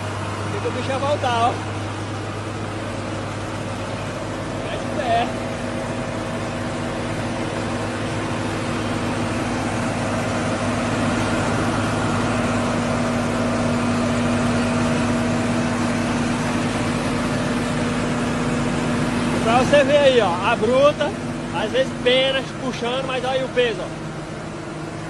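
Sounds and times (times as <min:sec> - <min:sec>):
tractor diesel engine under load: 0:00.0 - 0:25.0.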